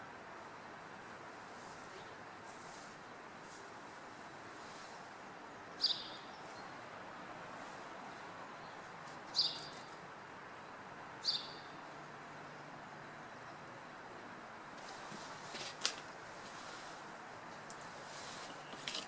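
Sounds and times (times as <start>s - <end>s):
town background hum: 0.0s - 19.0s
bird chirping: 5.5s - 6.8s, 8.0s - 10.0s, 11.2s - 13.7s, 18.2s - 19.0s.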